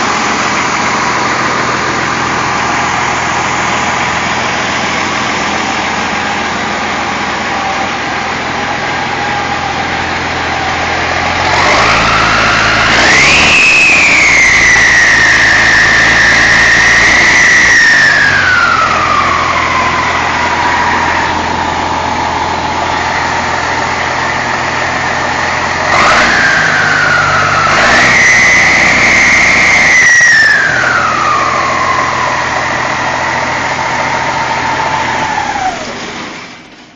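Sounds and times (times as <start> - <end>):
truck engine revving: 0.0 - 36.9
turbo whistle: 11.4 - 22.4, 26.0 - 35.8.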